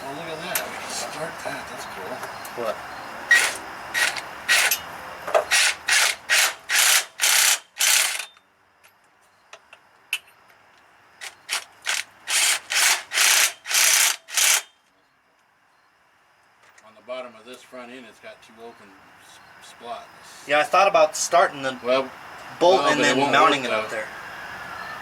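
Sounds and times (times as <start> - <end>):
ratchet wrench ratcheting: 5.5 - 8.3, 11.2 - 14.7.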